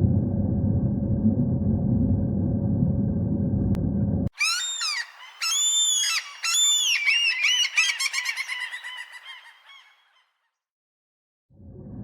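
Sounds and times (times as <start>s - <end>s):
farm bird squawking: 4.4s - 10.1s.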